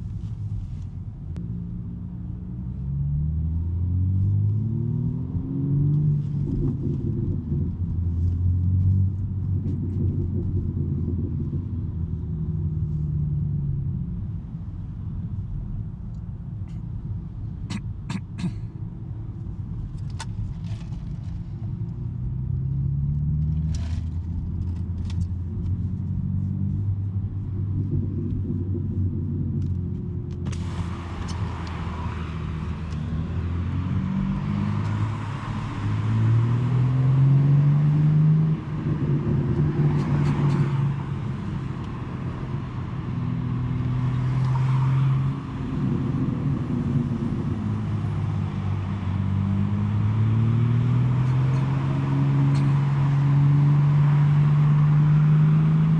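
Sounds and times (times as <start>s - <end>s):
car engine accelerating: 1.4s - 16.3s, 19.1s - 55.9s
steady rushing noise: 26.7s - 36.1s.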